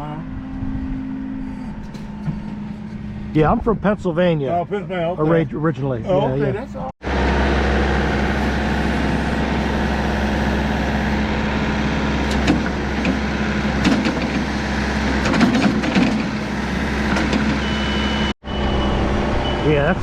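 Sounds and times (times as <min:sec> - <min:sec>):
tractor engine humming: 0:00.0 - 0:20.0
knocks and rattles: 0:12.3 - 0:17.6.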